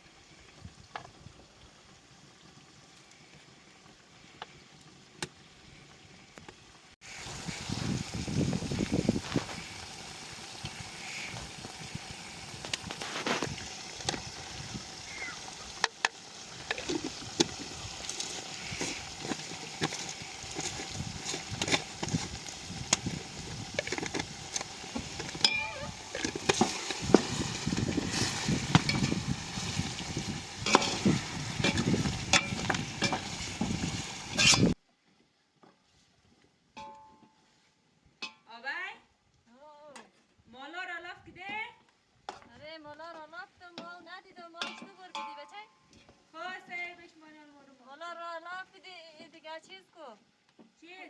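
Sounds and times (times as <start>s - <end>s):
food sizzling in a pot: 0.0s - 34.8s
utensil scraping a pot: 15.8s - 34.8s.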